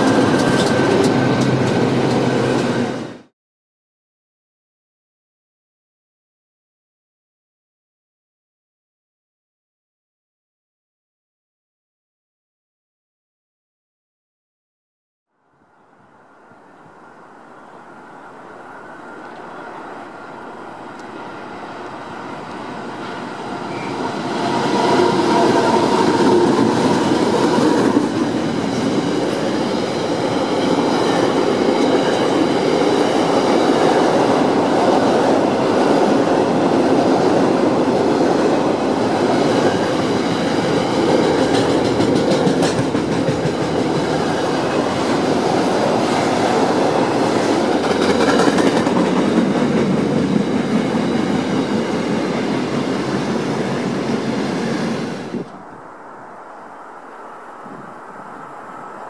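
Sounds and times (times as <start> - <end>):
diesel locomotive engines: 0.0 - 3.3, 15.4 - 59.0
train wheels on rail: 0.0 - 3.3, 16.0 - 59.0.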